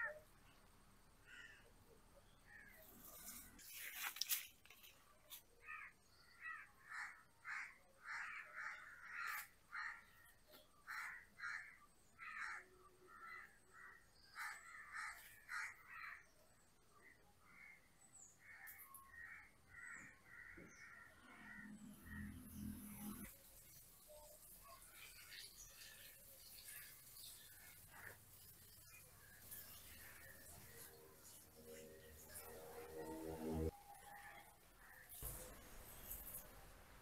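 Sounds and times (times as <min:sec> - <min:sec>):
noise burst: 0:34.8 - 0:37.0.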